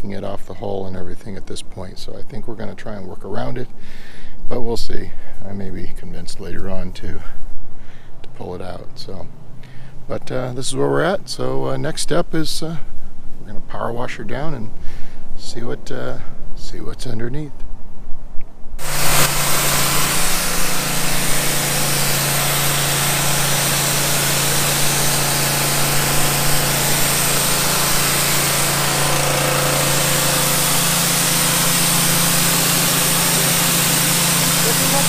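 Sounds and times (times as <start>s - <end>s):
power washer motor hum: 18.8s - 35.0s
water spray hissing: 18.8s - 35.0s.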